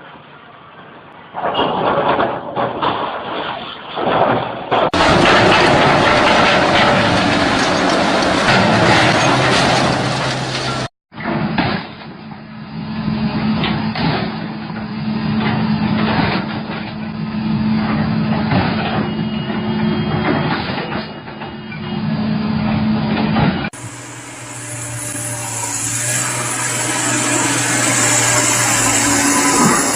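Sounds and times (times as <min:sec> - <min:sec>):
metal clanks and knocks: 0:04.7 - 0:12.1
heavy machinery humming: 0:04.9 - 0:10.9, 0:12.3 - 0:29.9
steady engine: 0:04.9 - 0:29.9.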